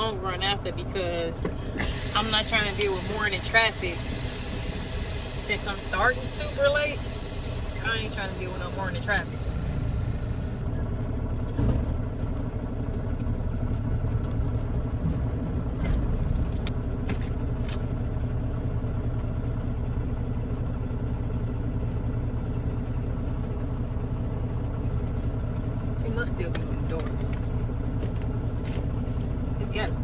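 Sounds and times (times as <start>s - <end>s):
diesel truck engine idling: 0.0s - 30.0s.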